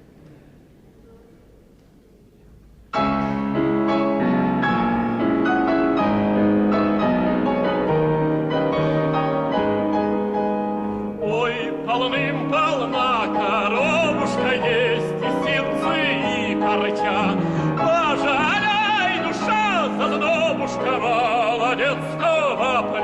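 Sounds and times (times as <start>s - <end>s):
solo piano: 2.9s - 23.0s
male operatic tenor singing: 11.2s - 23.0s.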